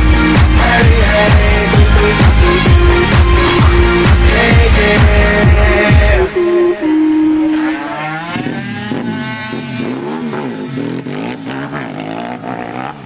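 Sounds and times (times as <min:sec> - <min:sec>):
small motorbike engines racing: 0:07.4 - 0:13.0.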